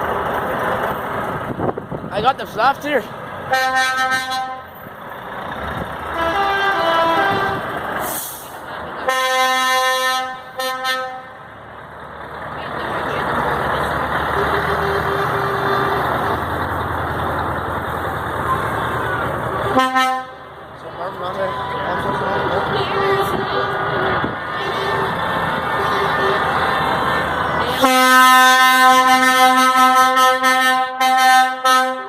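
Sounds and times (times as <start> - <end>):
heavy truck engine rumble: 0.0 - 32.0
road noise: 0.0 - 32.0
truck horn blasts: 3.5 - 4.7, 6.0 - 8.2, 9.0 - 11.4, 14.2 - 16.4, 19.6 - 20.5, 21.3 - 27.1, 27.7 - 32.0.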